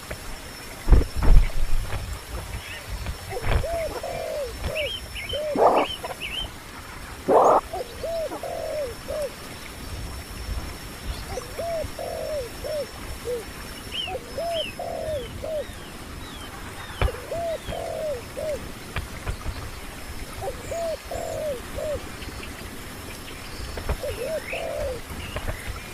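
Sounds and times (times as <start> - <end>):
dove cooing: 3.2 - 6.5, 7.2 - 9.4, 11.3 - 15.8, 16.6 - 18.7, 20.4 - 22.1, 24.0 - 25.2.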